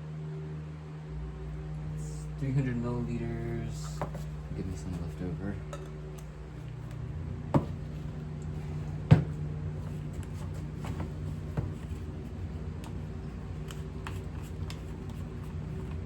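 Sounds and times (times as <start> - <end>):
steady low hum: 0.0 - 16.0
container knocking on bench: 7.5 - 7.8, 9.1 - 9.4.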